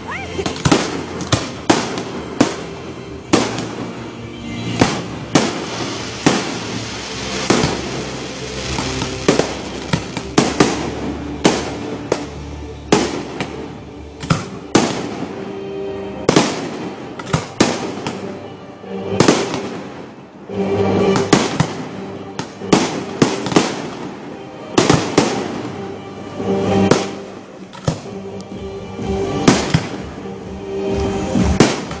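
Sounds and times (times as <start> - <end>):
music: 0.0 - 32.0
firework shells bursting: 4.8 - 10.9.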